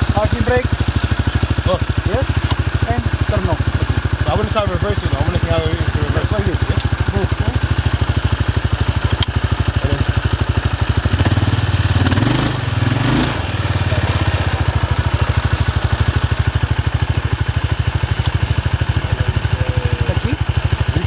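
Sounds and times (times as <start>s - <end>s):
quad bike engine idling and revving: 0.0s - 21.0s.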